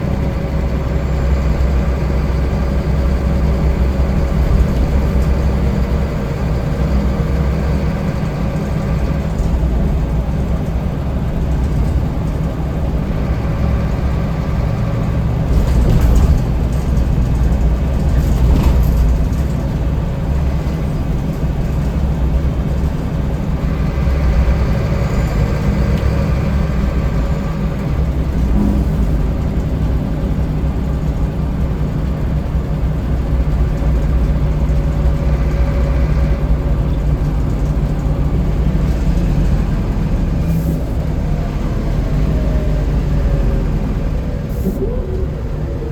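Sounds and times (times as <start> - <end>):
bus diesel engine running: 0.0 - 45.9
road noise: 0.0 - 45.9.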